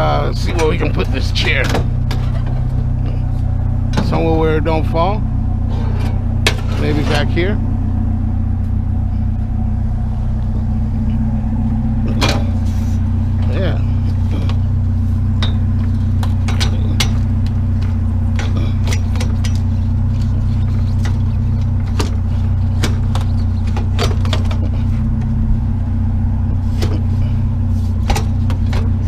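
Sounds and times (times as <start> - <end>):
vehicle engine idling: 0.0 - 29.0
knocks and clatter of objects: 15.4 - 25.3.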